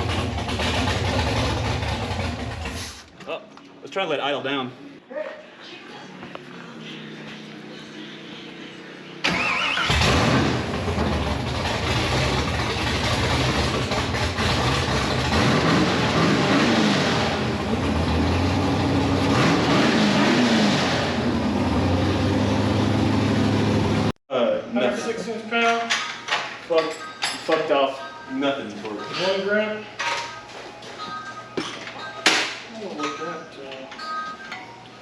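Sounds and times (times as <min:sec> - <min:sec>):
engine cranking: 0:09.2 - 0:15.5
race car engine revving: 0:09.2 - 0:24.1.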